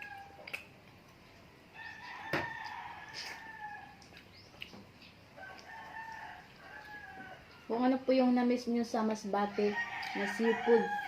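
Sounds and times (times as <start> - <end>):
rooster crowing: 0.0 - 0.4, 1.7 - 4.0, 5.4 - 7.8, 9.5 - 11.0.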